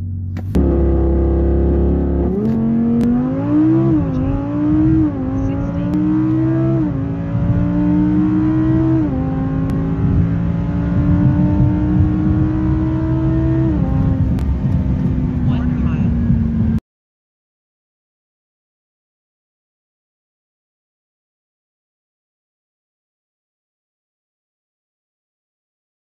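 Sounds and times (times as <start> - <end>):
sports car engine launching: 0.1 - 15.5
gearbox upshifts: 2.0 - 15.2.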